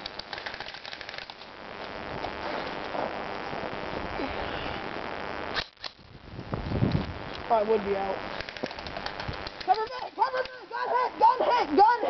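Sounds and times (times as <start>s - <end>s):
airsoft gun full-auto burst: 0.0s - 1.4s, 8.3s - 9.8s.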